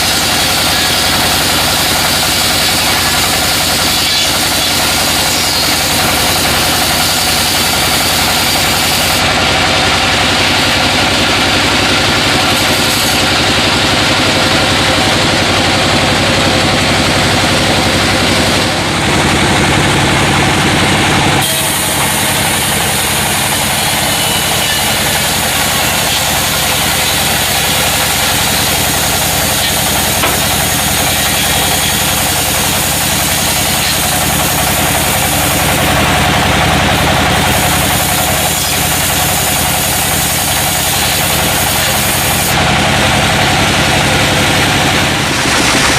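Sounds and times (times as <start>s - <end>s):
sawmill machinery droning: 0.0s - 45.9s.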